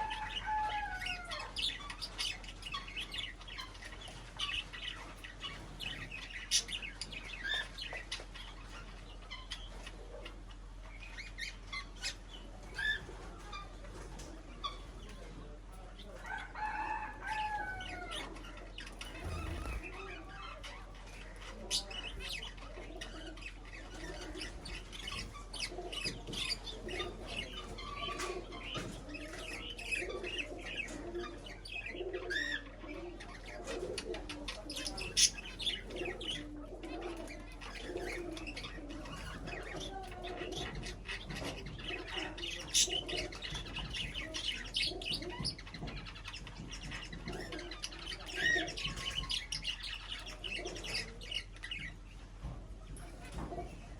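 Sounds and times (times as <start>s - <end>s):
birds chirping and calling: 0.0s - 53.9s
wing flutters: 19.0s - 20.3s.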